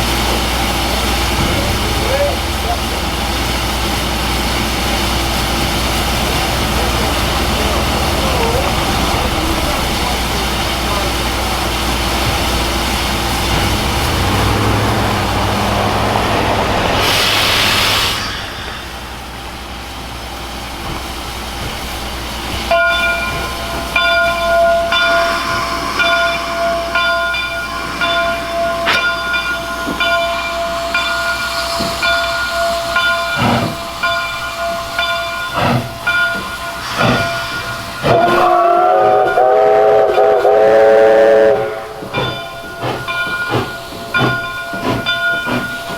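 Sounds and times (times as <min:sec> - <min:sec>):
steam locomotive rumble and hiss: 0:00.0 - 0:45.9
bell ringing: 0:22.7 - 0:38.3, 0:42.1 - 0:45.9
steam whistle blowing: 0:24.6 - 0:30.2, 0:36.7 - 0:42.3.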